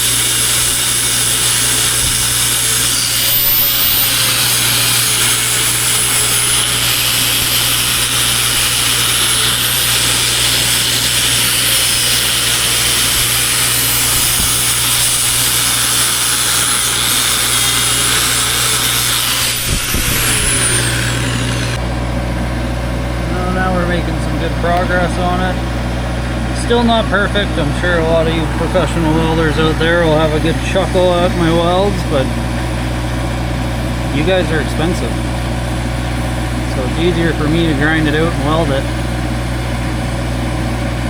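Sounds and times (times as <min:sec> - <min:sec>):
angle grinder on steel: 0:00.0 - 0:21.9, 0:24.7 - 0:32.3, 0:34.1 - 0:39.8
grinder disc spinning down: 0:00.0 - 0:22.0, 0:23.4 - 0:32.3.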